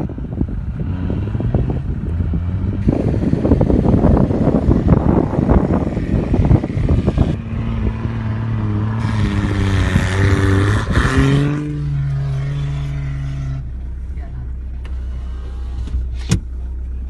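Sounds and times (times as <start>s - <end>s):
wind buffeting microphone: 0.0s - 13.2s
diesel engine pulling: 0.0s - 17.0s.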